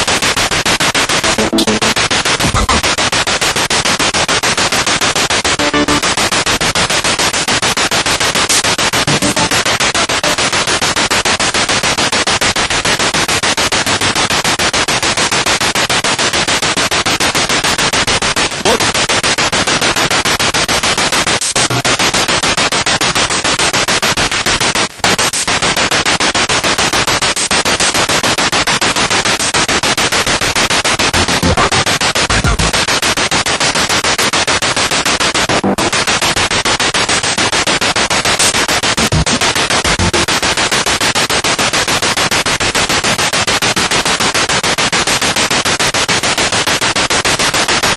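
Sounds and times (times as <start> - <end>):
pulsing radio static: 0.0 - 12.0, 17.7 - 41.6.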